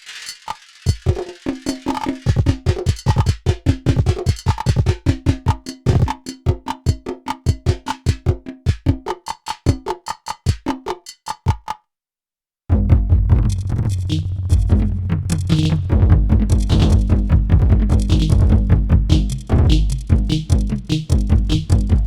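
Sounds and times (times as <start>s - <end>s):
bright clicky percussion: 0.0s - 11.8s
deep kick drum thumps: 12.7s - 13.5s, 15.9s - 22.0s.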